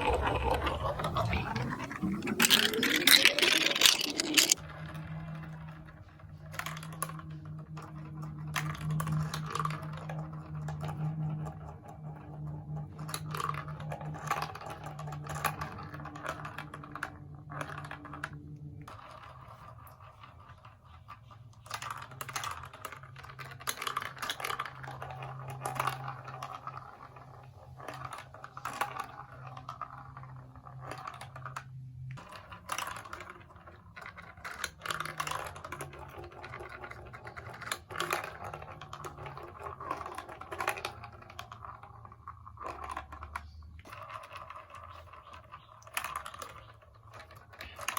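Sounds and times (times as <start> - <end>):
plastic pieces clicking and clattering: 0.0 - 4.8, 12.7 - 19.4, 21.6 - 47.9.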